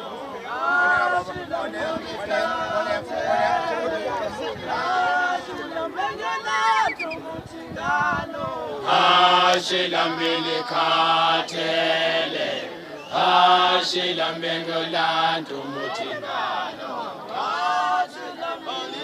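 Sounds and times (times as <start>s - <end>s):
vocal group singing a cappella: 0.0s - 19.0s.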